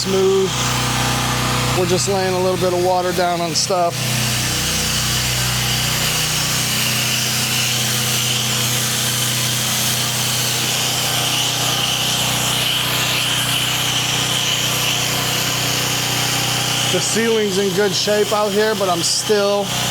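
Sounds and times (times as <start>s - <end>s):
pressure washer hum: 0.0s - 19.9s
water spray hissing: 4.6s - 19.9s.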